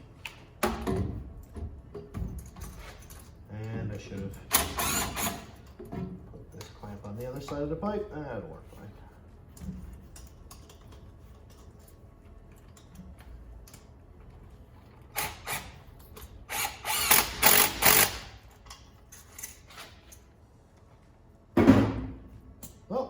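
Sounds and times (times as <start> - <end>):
tool tightening hose clamp: 4.5 - 5.6, 15.2 - 19.9.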